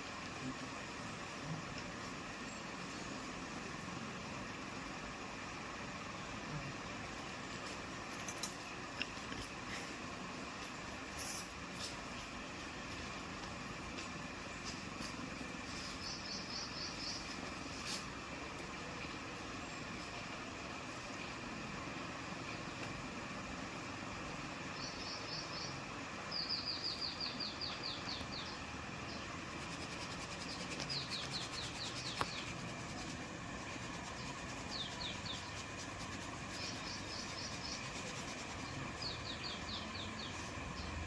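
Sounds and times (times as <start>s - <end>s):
bird chirping: 24.8s - 33.1s, 33.7s - 41.0s.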